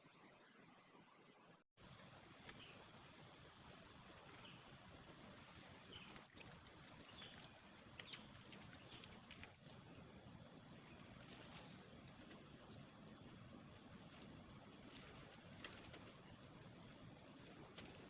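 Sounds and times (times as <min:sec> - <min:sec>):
faint chirps: 0:00.0 - 0:02.9
high-pitched insect hum: 0:00.0 - 0:18.0.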